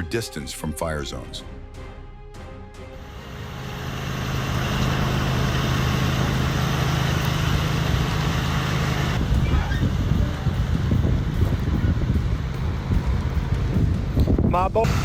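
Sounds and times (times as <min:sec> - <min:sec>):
vehicle road rumble: 0:03.0 - 0:15.0.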